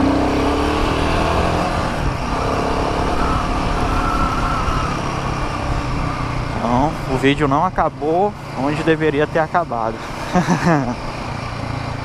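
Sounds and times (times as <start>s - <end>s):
motorcycle engine accelerating: 0.0s - 7.6s
road and wind noise: 0.0s - 12.0s.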